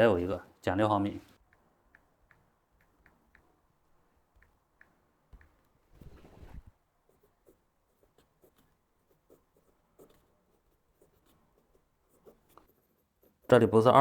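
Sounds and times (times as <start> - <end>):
pen scratching while writing: 5.4 - 13.6
short rustle: 5.8 - 6.8.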